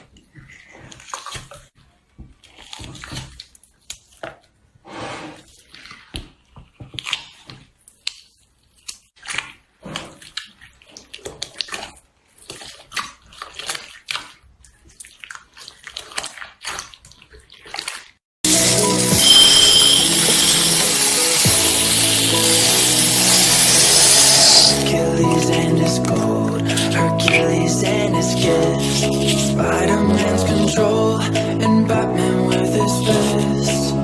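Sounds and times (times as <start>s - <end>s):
slime squishing: 0.0s - 4.6s, 5.4s - 18.2s.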